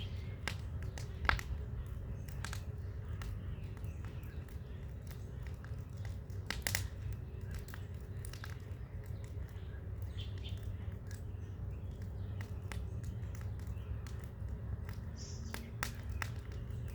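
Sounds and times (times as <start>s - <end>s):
bonfire rumble: 0.0s - 16.9s
fire crackling pops: 0.0s - 16.9s.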